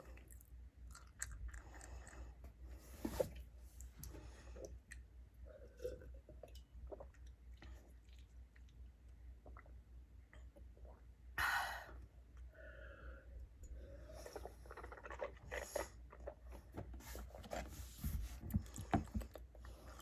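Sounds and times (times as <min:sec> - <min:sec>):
person chewing food: 0:00.0 - 0:02.4, 0:18.5 - 0:20.0.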